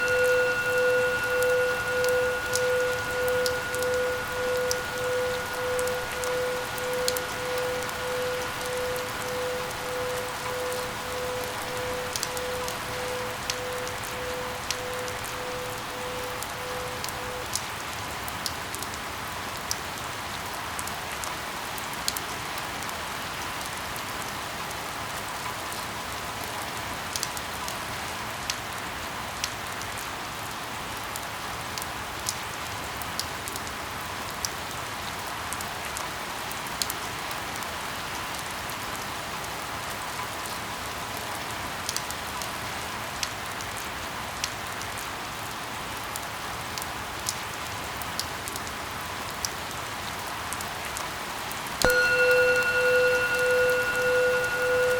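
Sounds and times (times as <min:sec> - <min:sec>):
raindrops ticking close by: 0:00.0 - 0:23.8, 0:26.4 - 0:39.7
steady rain falling: 0:00.0 - 0:54.9.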